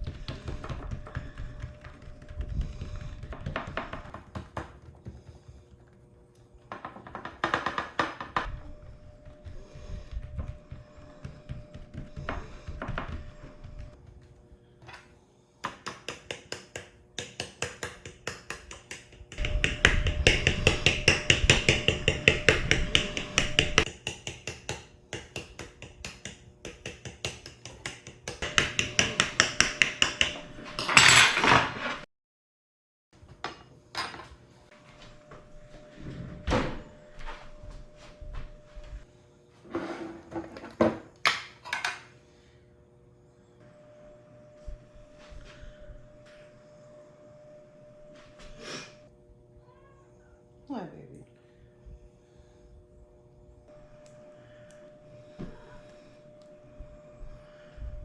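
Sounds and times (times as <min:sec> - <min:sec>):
kitchen utensils clicking and knocking: 0:00.0 - 0:08.6, 0:14.8 - 0:32.0, 0:33.5 - 0:34.4, 0:39.7 - 0:42.1.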